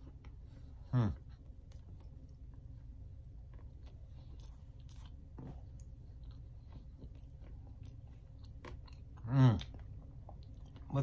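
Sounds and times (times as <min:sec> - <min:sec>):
faint chewing: 0:00.0 - 0:11.0.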